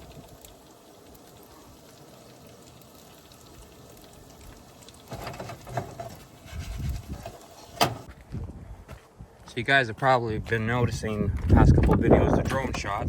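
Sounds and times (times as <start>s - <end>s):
knocks and handling noises: 5.1s - 8.1s.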